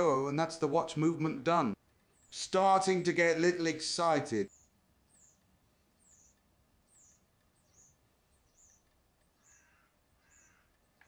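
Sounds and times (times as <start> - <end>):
faint bird chirping: 1.8 - 2.5, 4.4 - 11.0.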